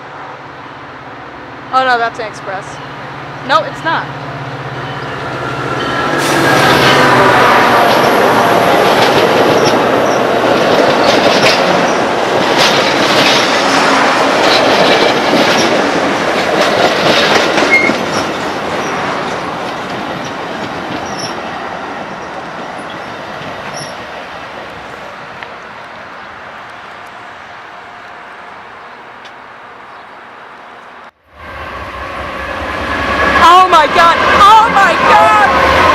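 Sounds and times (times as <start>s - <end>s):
train wheels clattering over rails: 4.8s - 31.1s.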